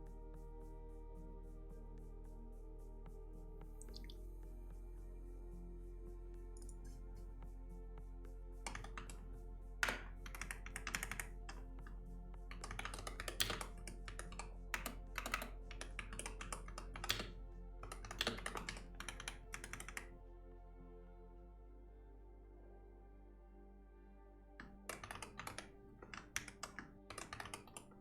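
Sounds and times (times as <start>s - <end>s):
soft background music: 0.0s - 28.0s
keyboard typing: 8.7s - 9.2s, 9.8s - 11.6s, 12.5s - 20.0s, 24.6s - 28.0s.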